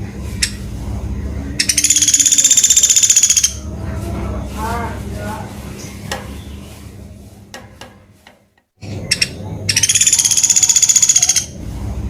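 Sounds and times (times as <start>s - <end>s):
woodpecker trill: 1.6s - 3.6s, 8.8s - 11.6s.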